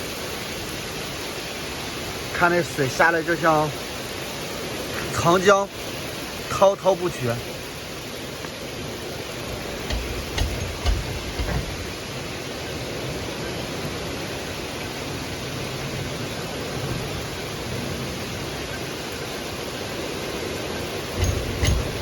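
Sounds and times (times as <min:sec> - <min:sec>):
heavy rain hissing: 0:00.0 - 0:22.0
running water: 0:00.0 - 0:22.0
low thumps: 0:09.6 - 0:12.0, 0:21.2 - 0:22.0.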